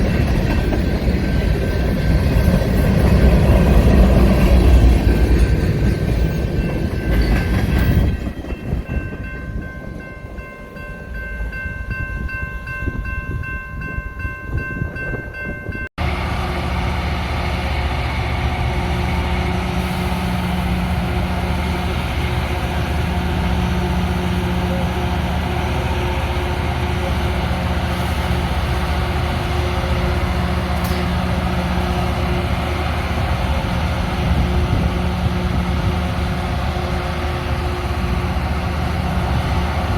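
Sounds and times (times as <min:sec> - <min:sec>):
diesel engines running: 0:16.0 - 0:39.9.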